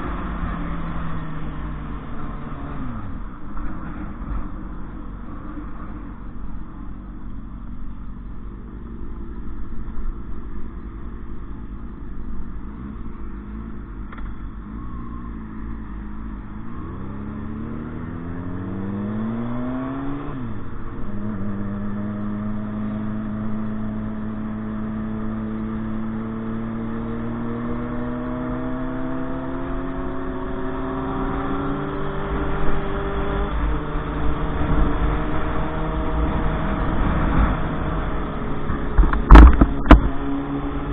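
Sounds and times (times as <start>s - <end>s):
motorcycle engine revving: 12.6s - 40.9s.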